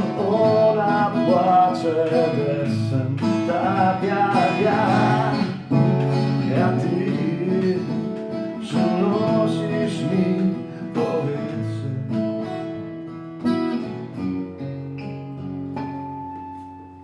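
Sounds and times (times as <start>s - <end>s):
wordless singing: 0.0s - 12.2s
acoustic guitar chords: 0.0s - 17.0s.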